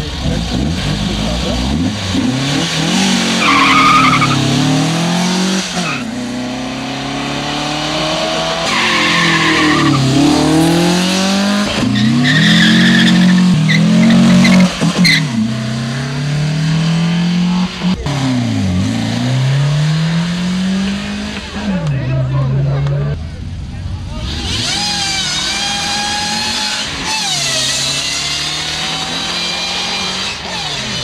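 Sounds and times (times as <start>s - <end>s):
cars accelerating hard: 0.0s - 31.0s
tyre squeal: 3.4s - 4.4s, 8.6s - 10.1s, 11.8s - 15.4s.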